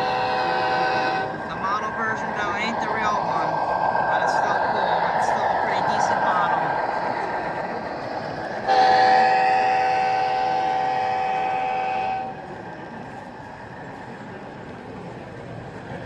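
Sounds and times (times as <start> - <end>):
model locomotive horn blast: 0.0 - 1.4, 8.7 - 12.4.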